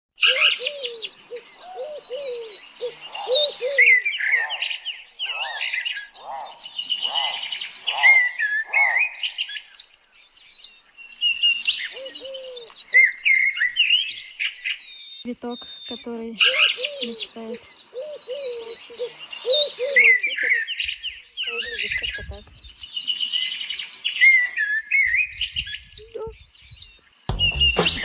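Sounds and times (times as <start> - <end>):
arched bird calls: 0.2 - 28.0
birds twittering and chirping: 0.2 - 28.0
low falling bird notes: 27.2 - 28.0.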